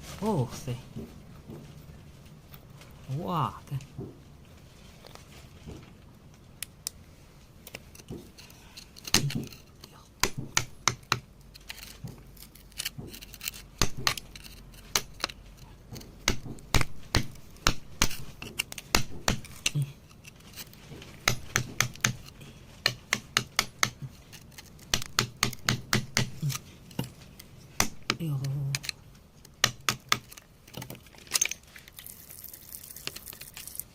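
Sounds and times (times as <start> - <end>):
hand tools clicking on stone: 7.9 - 32.0.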